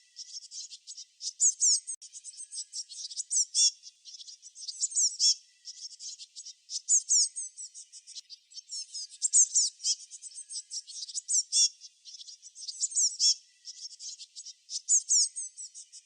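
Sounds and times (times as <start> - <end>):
songbirds chirping: 0.0 - 16.0
down-slurred bird whistles: 1.3 - 6.2, 6.8 - 7.6, 8.6 - 15.7.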